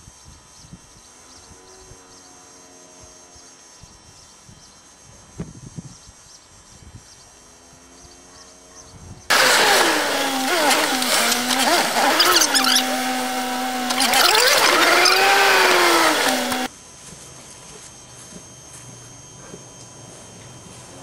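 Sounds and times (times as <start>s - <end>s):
car engine: 9.3s - 16.7s.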